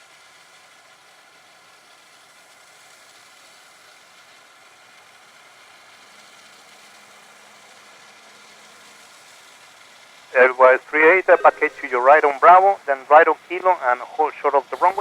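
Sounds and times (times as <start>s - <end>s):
distant jet engine noise: 10.4s - 15.0s
low steady hum: 10.4s - 15.0s.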